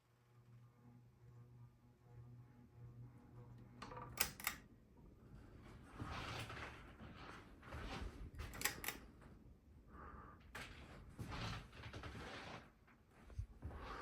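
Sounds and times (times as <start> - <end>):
ceiling fan pull-chain clicks: 3.8 - 4.7, 8.4 - 9.2.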